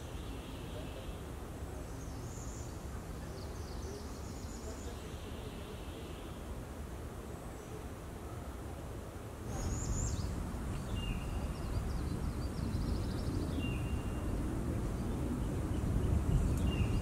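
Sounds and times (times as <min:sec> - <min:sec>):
birds chirping and trilling: 0:09.5 - 0:17.0
steady low rumble: 0:09.5 - 0:17.0.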